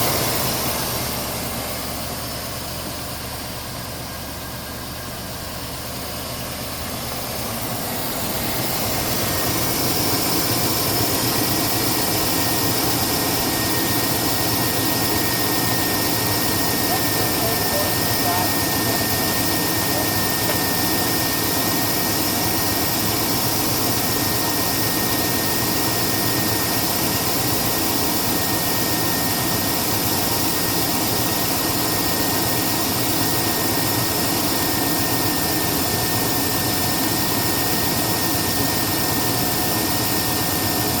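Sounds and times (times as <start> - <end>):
engine running steadily: 0.0 - 41.0
thin high whine: 7.8 - 33.0.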